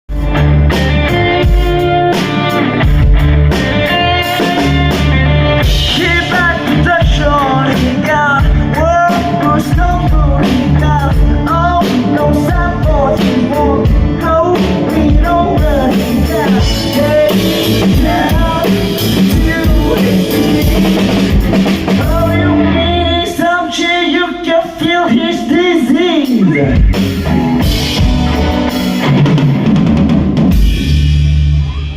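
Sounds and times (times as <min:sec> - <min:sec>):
live band playing: 0:00.1 - 0:31.9
person singing: 0:03.8 - 0:27.2.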